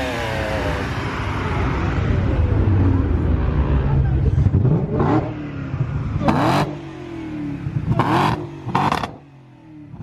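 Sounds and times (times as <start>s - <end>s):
car engine revving: 4.4s - 10.0s.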